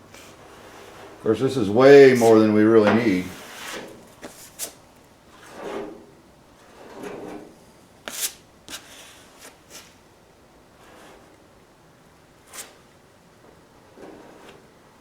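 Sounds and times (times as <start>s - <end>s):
spreader scraping body filler: 0.1s - 10.0s, 10.8s - 11.5s, 13.9s - 14.8s.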